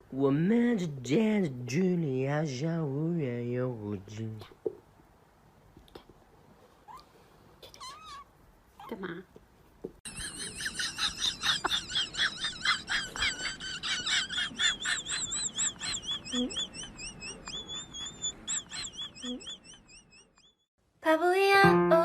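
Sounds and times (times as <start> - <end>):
bird chirping: 10.1 - 20.7.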